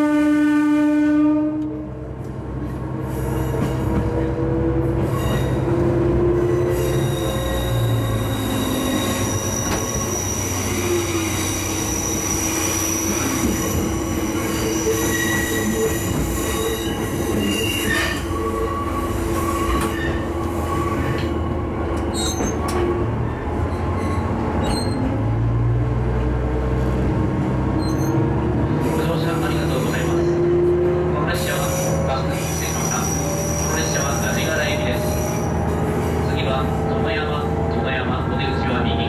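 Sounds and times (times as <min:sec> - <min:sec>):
diesel railcar running: 0:00.0 - 0:39.0
high-pitched wheel squeal: 0:05.0 - 0:05.7, 0:06.4 - 0:21.4, 0:22.0 - 0:25.1, 0:27.8 - 0:28.2, 0:31.4 - 0:36.1.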